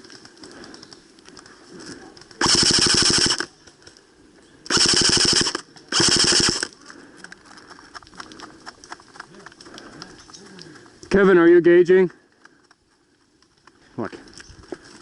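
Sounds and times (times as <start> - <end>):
airsoft gun firing bursts: 2.4 - 3.5, 4.7 - 6.7.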